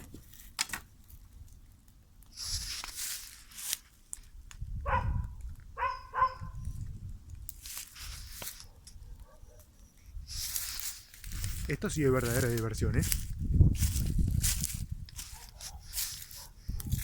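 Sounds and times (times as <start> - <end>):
dog barking: 4.8 - 6.6, 8.6 - 9.8, 15.3 - 17.0.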